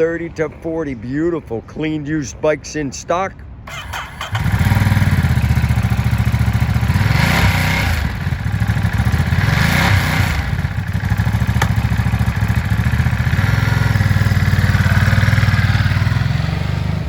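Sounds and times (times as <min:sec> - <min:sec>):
motorcycle engine idling and revving: 0:03.7 - 0:17.0.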